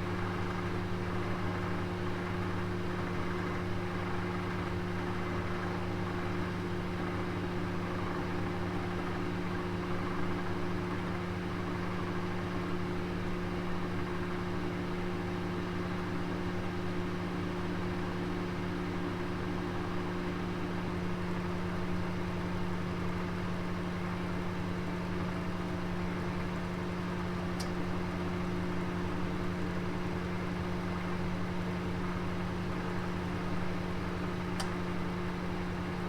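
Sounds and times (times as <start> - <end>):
oven humming and whirring: 0.0 - 36.0.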